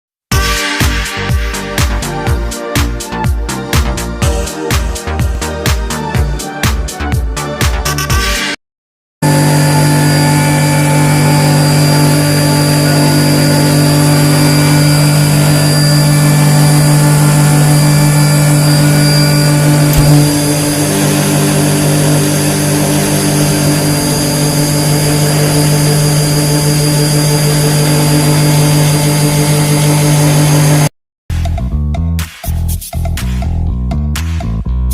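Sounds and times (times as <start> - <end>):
industrial machine humming: 9.2 - 30.9.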